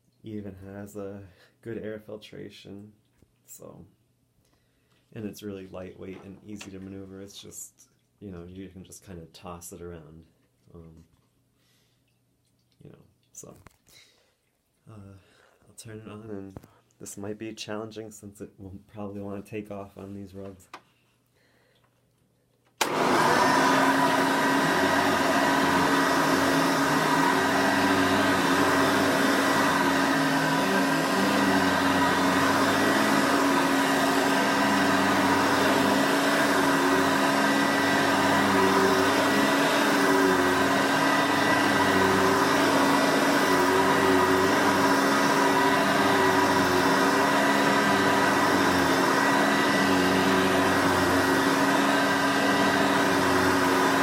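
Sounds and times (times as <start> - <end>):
upright vacuum cleaner running: 22.8 - 54.0.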